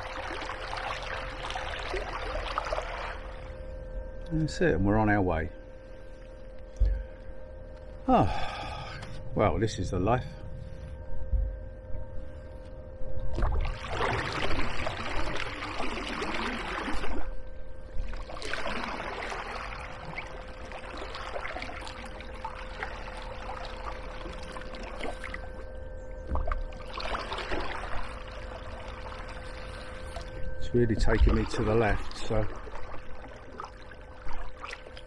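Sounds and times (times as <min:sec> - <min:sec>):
water splashing around kayak: 0:00.0 - 0:03.6, 0:13.3 - 0:25.7, 0:26.3 - 0:35.0.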